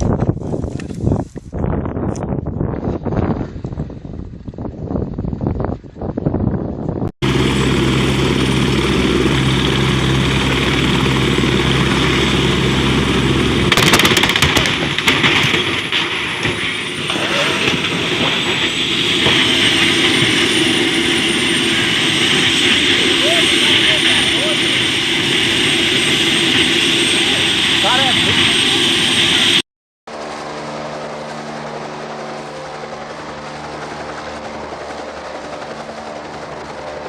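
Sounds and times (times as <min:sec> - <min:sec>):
helicopter drone: 0:02.9 - 0:37.0
turbine whine with high whistle: 0:07.2 - 0:37.0
sharp cracks: 0:13.7 - 0:18.6.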